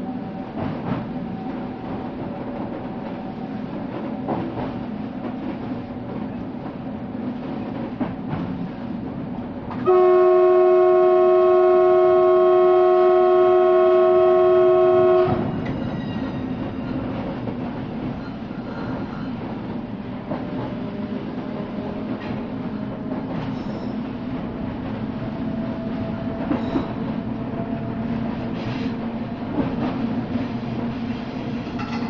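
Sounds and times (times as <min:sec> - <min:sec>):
train running on rails: 0:00.0 - 0:32.0
train horn blast: 0:09.8 - 0:15.5.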